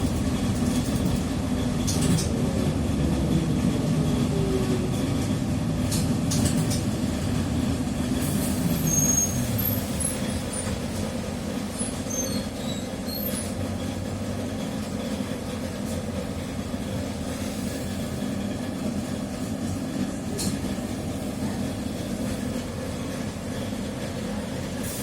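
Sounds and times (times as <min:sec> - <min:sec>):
trolleybus drive rumble and whine: 0:00.0 - 0:25.0
short high squeaks: 0:12.1 - 0:13.5.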